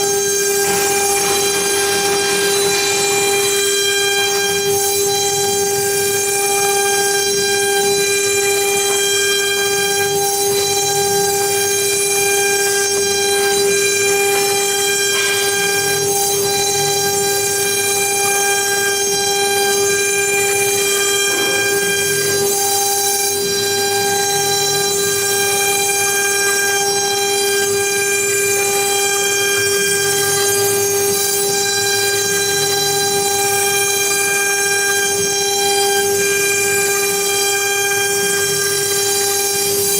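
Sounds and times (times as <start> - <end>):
router high-pitched whine: 0.0 - 39.9
machine motion sounds: 0.1 - 4.8, 14.6 - 25.0.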